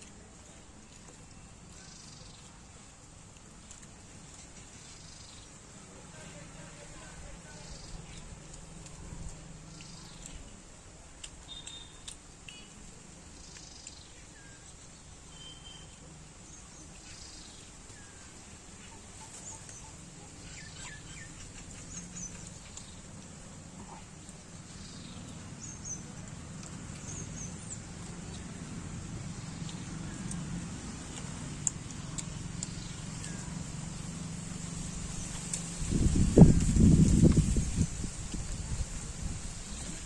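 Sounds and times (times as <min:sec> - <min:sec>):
birds chirping: 0:11.4 - 0:34.2.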